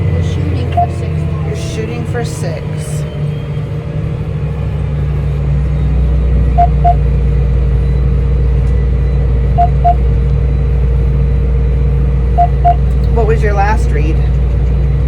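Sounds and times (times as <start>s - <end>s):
tractor engine running under load: 0.0s - 15.0s
electronic double beep: 0.6s - 1.1s, 6.5s - 7.1s, 9.5s - 10.1s, 12.3s - 12.8s.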